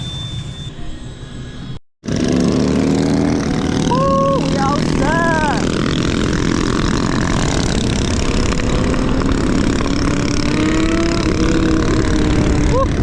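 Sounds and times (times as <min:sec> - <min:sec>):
wind buffeting microphone: 0:03.1 - 0:13.0.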